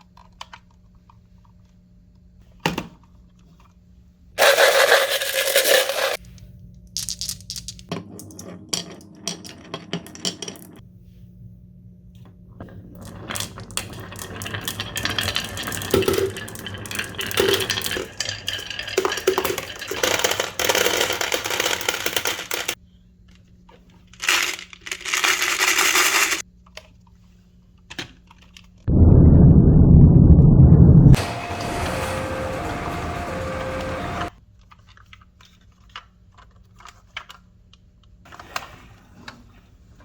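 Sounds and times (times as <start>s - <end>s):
marbles rolling along track: 4.4s - 6.2s, 12.9s - 22.8s, 24.2s - 26.4s
loud low rumble: 28.9s - 33.6s.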